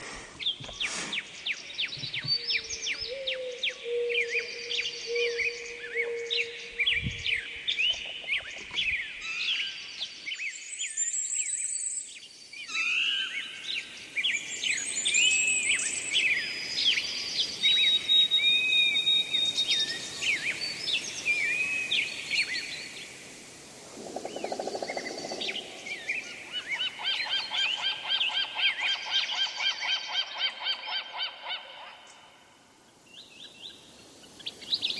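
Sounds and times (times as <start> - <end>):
birds chirping and whistling: 12.7 - 22.9.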